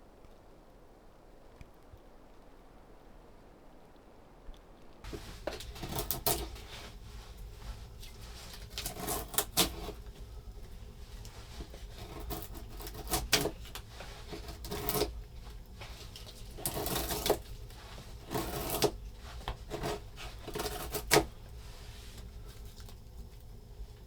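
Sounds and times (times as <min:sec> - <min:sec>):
objects being handled: 0:05.1 - 0:23.6.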